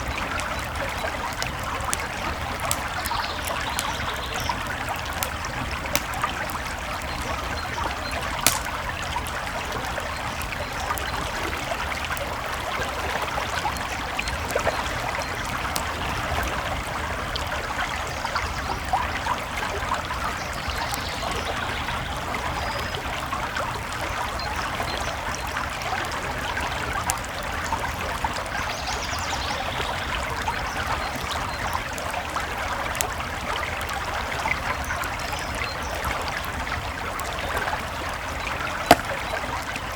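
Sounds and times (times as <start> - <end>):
campfire crackling and popping: 0.0 - 17.7, 32.0 - 39.9
creek babbling: 1.4 - 16.1, 36.2 - 39.9.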